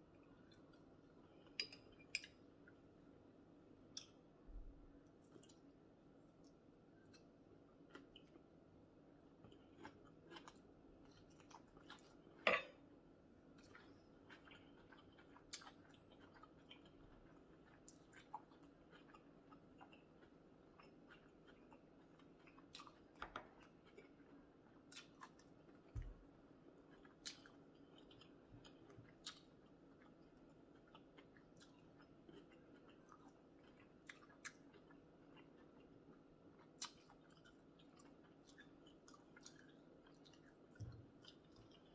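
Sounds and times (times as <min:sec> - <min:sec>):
person chewing: 0:09.4 - 0:12.4, 0:13.6 - 0:26.2, 0:26.8 - 0:41.9.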